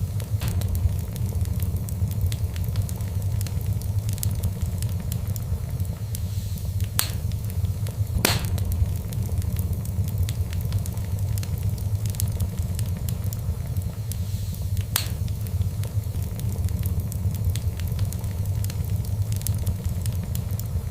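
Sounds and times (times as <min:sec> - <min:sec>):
fire crackling: 0:00.0 - 0:20.9
sharp fire pops: 0:00.2 - 0:20.7.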